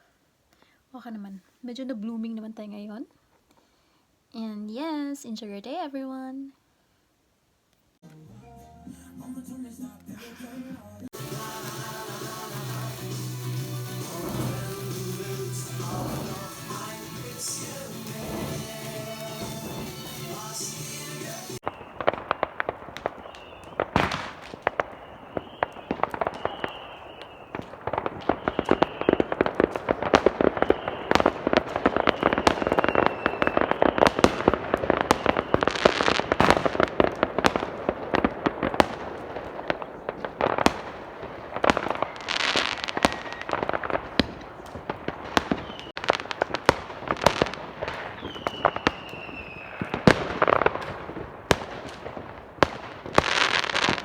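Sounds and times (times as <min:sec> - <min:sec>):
firecrackers banging and crackling: 0:11.2 - 0:54.0
whistling fireworks: 0:11.2 - 0:54.0.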